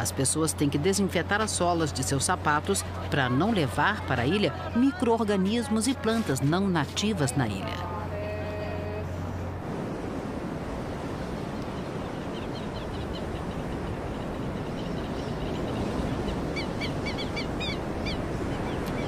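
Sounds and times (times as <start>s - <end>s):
rushing outdoor noise: 0.0s - 19.0s.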